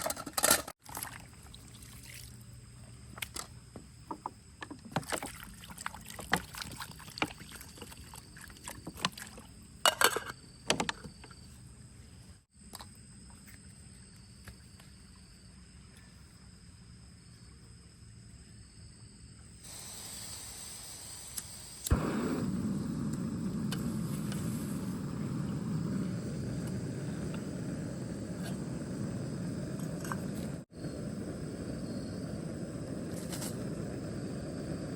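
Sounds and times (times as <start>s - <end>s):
steady rain hiss: 19.6s - 34.9s.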